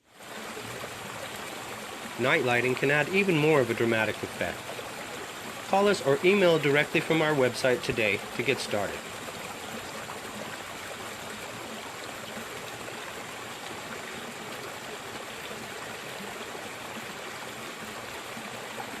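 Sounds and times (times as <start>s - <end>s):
waterfall rushing: 0.7s - 13.9s.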